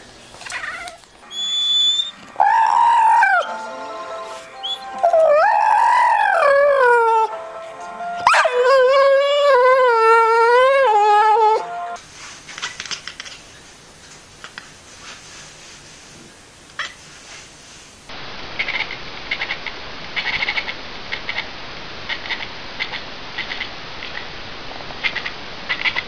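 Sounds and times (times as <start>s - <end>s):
dog howling: 1.3s - 3.6s, 4.6s - 7.4s, 8.2s - 11.7s.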